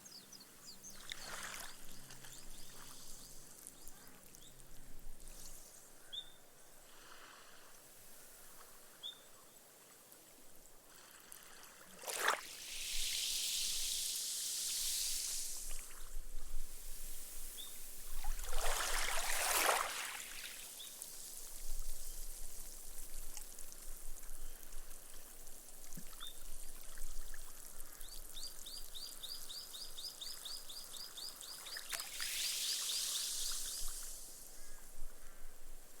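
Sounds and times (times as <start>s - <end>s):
small waves lapping on sand: 0.9s - 4.5s, 9.8s - 16.1s, 16.8s - 21.6s, 31.1s - 34.8s
foam fizzing into sand: 11.0s - 24.3s, 31.4s - 34.6s.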